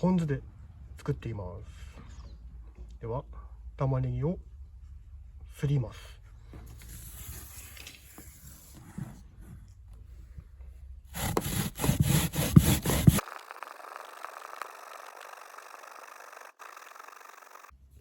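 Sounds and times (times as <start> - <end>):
onion grating strokes: 11.1 - 16.9.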